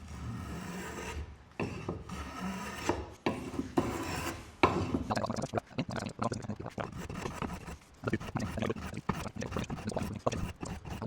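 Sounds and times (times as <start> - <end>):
hand plane shaving wood: 0.0 - 5.1, 6.7 - 11.0.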